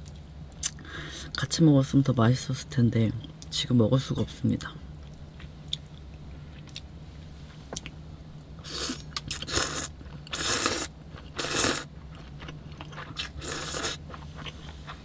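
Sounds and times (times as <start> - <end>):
steady low hum: 0.0 - 15.0
person slurping noodles: 8.6 - 11.9, 13.2 - 14.0.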